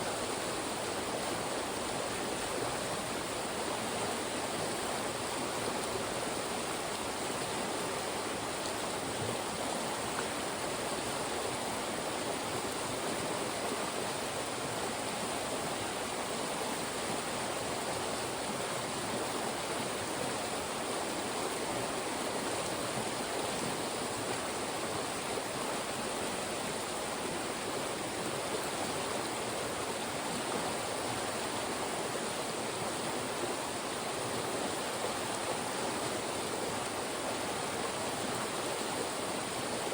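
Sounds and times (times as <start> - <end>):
mountain stream rushing over rocks: 0.0 - 39.9.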